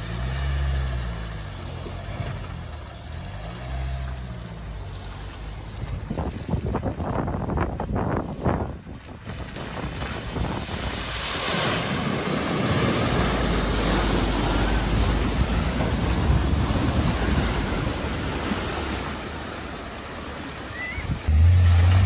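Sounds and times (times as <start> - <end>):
vehicle engine running low: 0.0 - 8.4, 12.1 - 22.0
floodwater splashing and surging: 0.0 - 22.0
wind noise on microphone: 5.5 - 19.0, 21.0 - 22.0.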